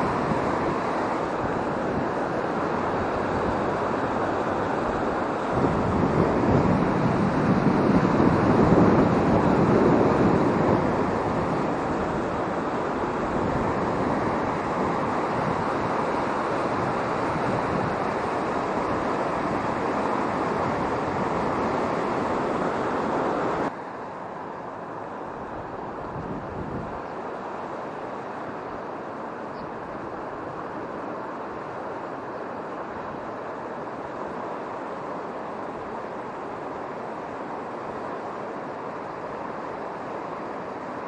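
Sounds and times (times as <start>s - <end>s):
wind buffeting microphone: 0.0s - 23.7s, 24.8s - 28.9s.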